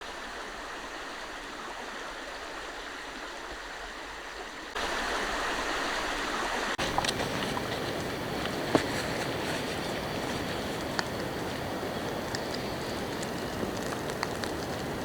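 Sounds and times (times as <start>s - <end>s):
steady rain falling: 4.8s - 15.0s.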